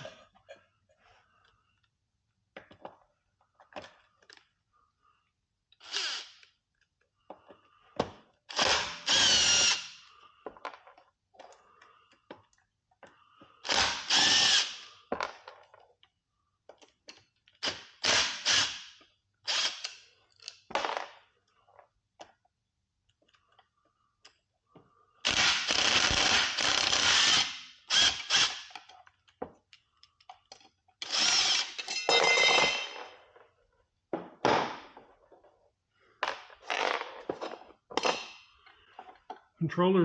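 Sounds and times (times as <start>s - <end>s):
power drill whining: 5.8s - 6.5s, 8.5s - 10.1s, 13.6s - 14.9s, 18.1s - 20.1s, 25.2s - 28.9s, 31.0s - 32.9s.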